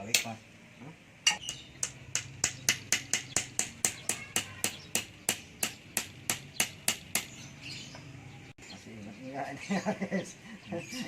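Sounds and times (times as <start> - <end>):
sharp rhythmic clicks: 1.3 - 7.3.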